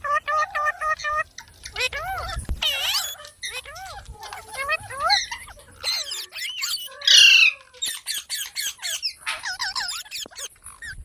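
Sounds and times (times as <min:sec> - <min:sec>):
parrot squawking and whistling: 0:00.1 - 0:03.9, 0:04.6 - 0:11.0.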